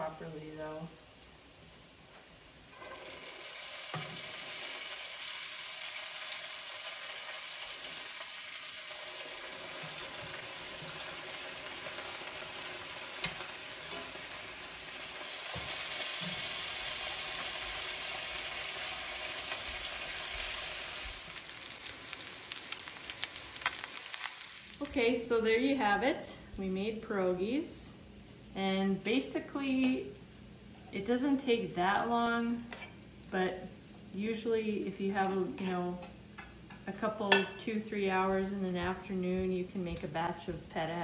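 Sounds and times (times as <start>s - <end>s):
dumplings sizzling in butter: 0.1s - 25.2s.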